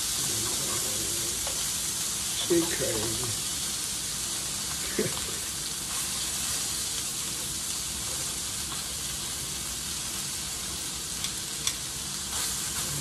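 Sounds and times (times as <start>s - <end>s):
sausage sizzling in a skillet: 0.0s - 13.0s.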